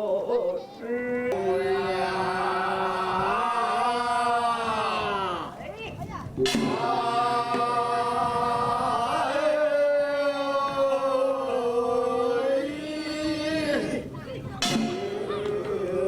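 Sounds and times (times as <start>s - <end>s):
person singing long wavering notes: 6.4s - 13.8s.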